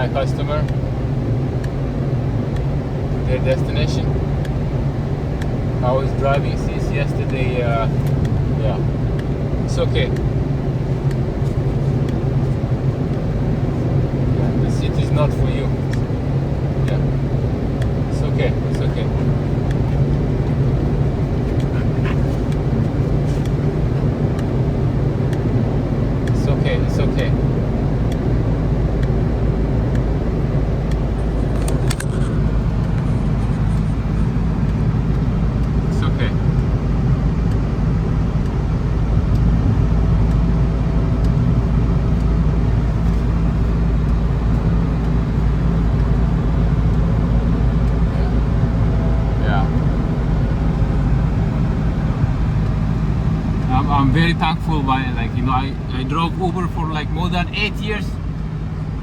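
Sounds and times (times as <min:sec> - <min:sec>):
car cabin road and engine noise: 0:00.0 - 0:59.0
faint light ticks: 0:17.8 - 0:18.0, 0:29.9 - 0:30.1, 0:37.4 - 0:37.7, 0:39.3 - 0:39.5, 0:40.2 - 0:40.5, 0:41.2 - 0:42.4, 0:46.9 - 0:47.1.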